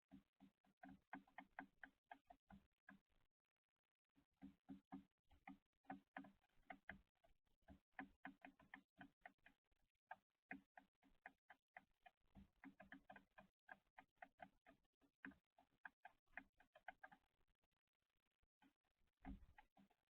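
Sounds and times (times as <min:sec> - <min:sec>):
beaks tapping on feeder: 0:07.7 - 0:09.6.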